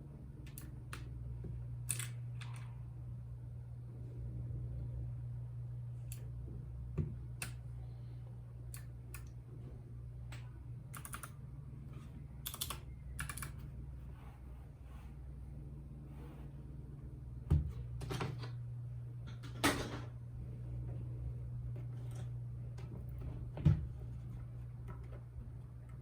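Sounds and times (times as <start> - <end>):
steady low hum: 0.0 - 26.0
mechanical keyboard keystrokes: 10.9 - 11.4, 12.4 - 13.6.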